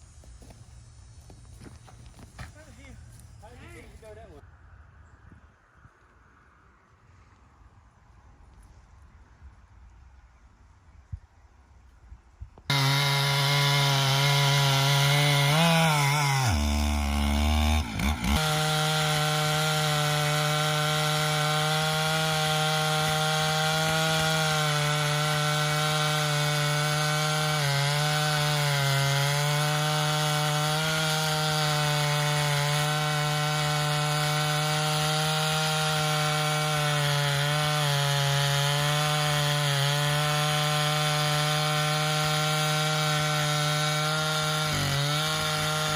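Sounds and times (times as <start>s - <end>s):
chainsaw cutting a log: 12.7s - 45.9s.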